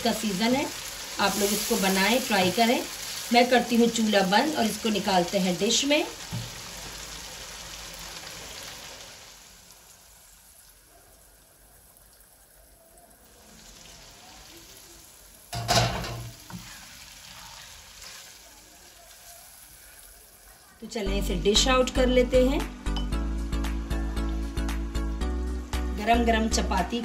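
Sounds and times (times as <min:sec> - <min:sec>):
curry sizzling in a wok: 0:00.0 - 0:22.3
spatula stirring in a wok: 0:16.3 - 0:20.8.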